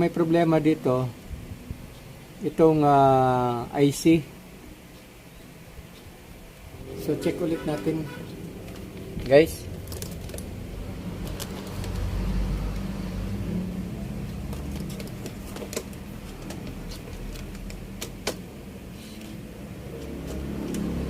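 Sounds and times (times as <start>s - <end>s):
motor vehicle passing: 6.7s - 17.4s, 19.2s - 21.0s.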